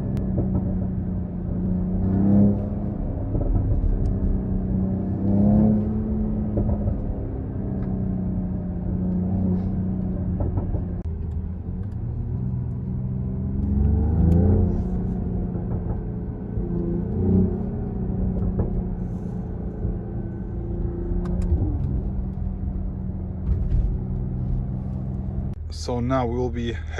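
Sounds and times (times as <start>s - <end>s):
car engine revving: 0.0s - 25.9s.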